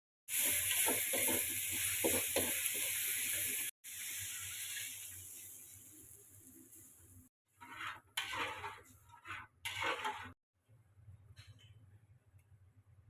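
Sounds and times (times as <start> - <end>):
stirring scrapes in a pan: 0.3 - 3.7, 7.5 - 10.4
food frying in hot oil: 0.3 - 10.4.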